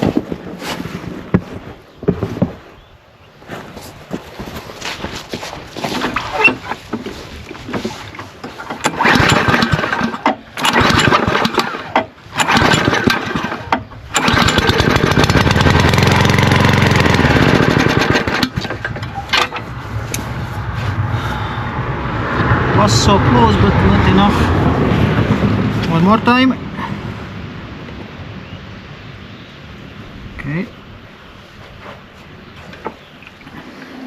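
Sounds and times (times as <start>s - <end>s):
lawnmower engine starting and dying: 5.7s - 21.6s.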